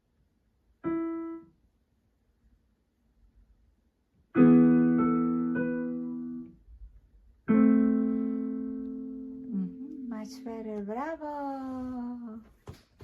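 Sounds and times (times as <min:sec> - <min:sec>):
digital piano chords: 0:00.8 - 0:01.6, 0:04.3 - 0:06.6, 0:07.4 - 0:10.4.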